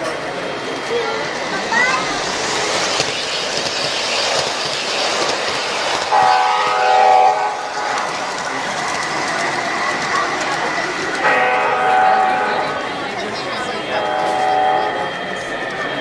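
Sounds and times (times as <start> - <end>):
model train running noise: 0.0 - 16.0
model train horn blast: 6.1 - 8.1, 11.2 - 12.8, 14.0 - 15.0.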